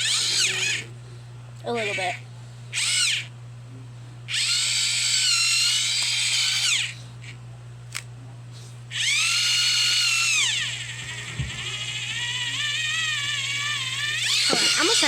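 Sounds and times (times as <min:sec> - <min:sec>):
electric pencil sharpener whining: 0:00.0 - 0:00.9, 0:01.7 - 0:03.3, 0:04.3 - 0:07.0, 0:08.9 - 0:15.0.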